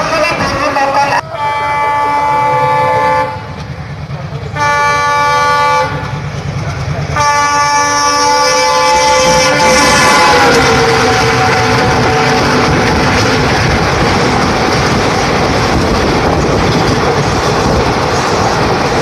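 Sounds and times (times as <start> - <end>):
locomotive engine rumble: 0.0 - 19.0
locomotive horn blasts: 1.4 - 3.5, 4.6 - 6.0, 7.2 - 13.1.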